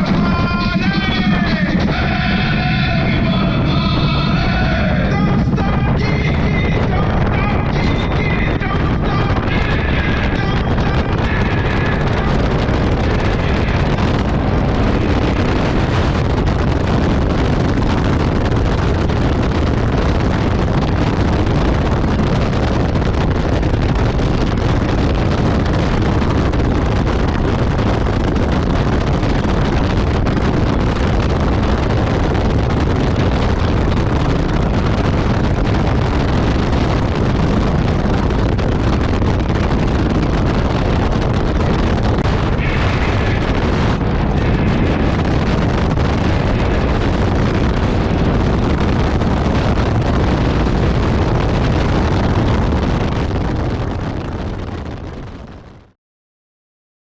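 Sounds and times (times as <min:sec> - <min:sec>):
motorcycle running with road noise: 0:00.0 - 0:04.6, 0:05.5 - 0:52.1
wind rushing over microphone: 0:00.0 - 0:56.0.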